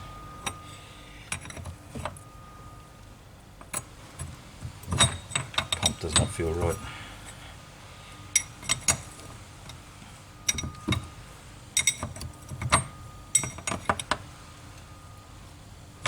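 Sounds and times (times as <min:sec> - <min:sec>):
metal tools clinking: 0:00.4 - 0:02.3, 0:03.6 - 0:07.4, 0:10.4 - 0:11.1, 0:11.8 - 0:14.2.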